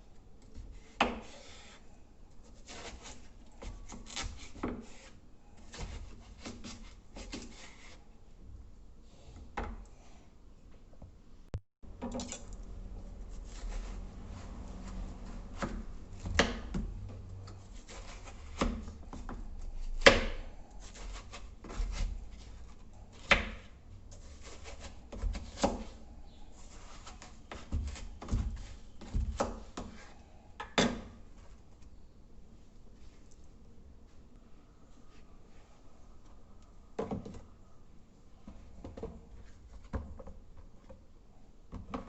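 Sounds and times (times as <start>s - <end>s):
knife slicing watermelon: 2.5s - 8.0s, 23.1s - 26.0s.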